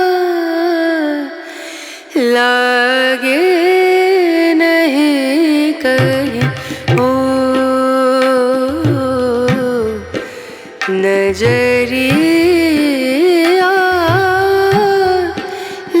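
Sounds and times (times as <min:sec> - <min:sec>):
low beat: 0:11.3 - 0:12.8.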